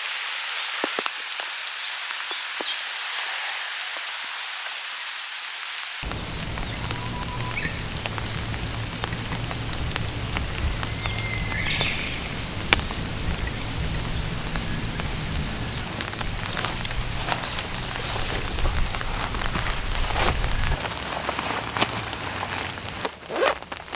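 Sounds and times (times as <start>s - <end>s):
heavy rain pouring: 0.0s - 23.9s
raindrops ticking on surfaces: 0.0s - 23.9s
low rumble: 6.0s - 20.9s.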